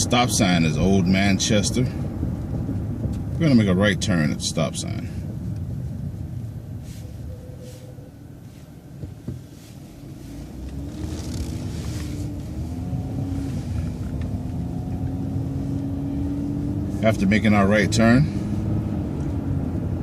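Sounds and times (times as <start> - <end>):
bus engine accelerating: 9.7 - 20.0.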